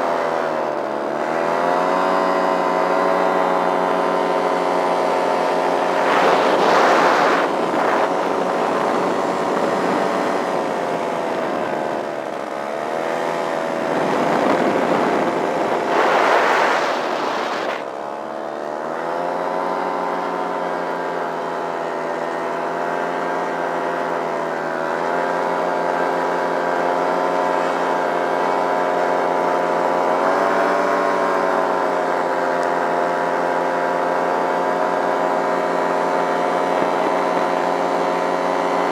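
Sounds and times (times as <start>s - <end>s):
paramotor engine running: 0.0s - 38.9s
rushing bursts: 5.6s - 9.6s, 14.0s - 18.0s.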